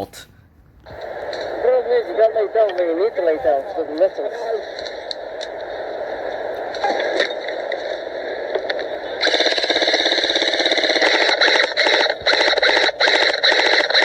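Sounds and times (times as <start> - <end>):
steady hiss: 0.8 - 12.9
airsoft gun rapid firing: 9.2 - 14.0.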